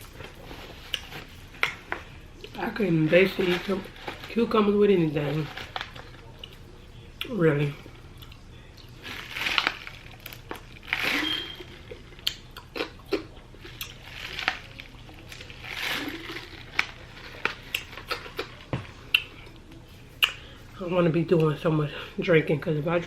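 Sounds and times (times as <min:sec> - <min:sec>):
crunchy chewing: 0:08.1 - 0:20.4.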